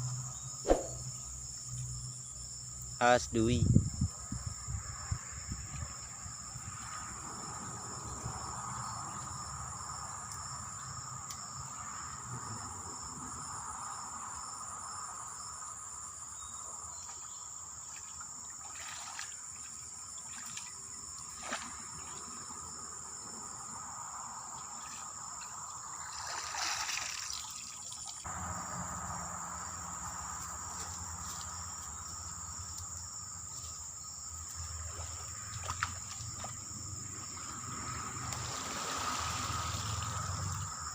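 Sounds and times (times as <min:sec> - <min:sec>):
insects chirping: 0:00.0 - 0:40.9
brief rush of noise: 0:00.6 - 0:01.1.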